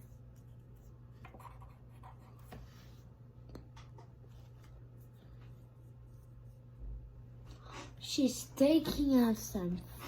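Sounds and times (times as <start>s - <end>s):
pencil scratching on paper: 0.0s - 2.8s
low steady hum: 0.0s - 10.0s.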